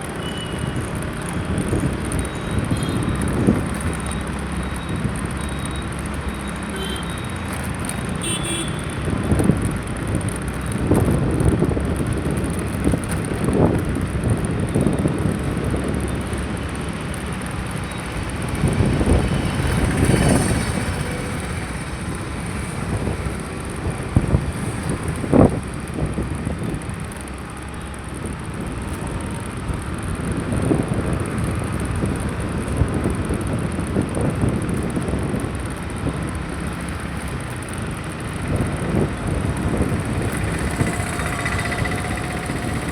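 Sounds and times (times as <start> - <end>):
road vehicle noise: 0.0 - 42.9
wind rumbling on microphone: 0.0 - 42.9.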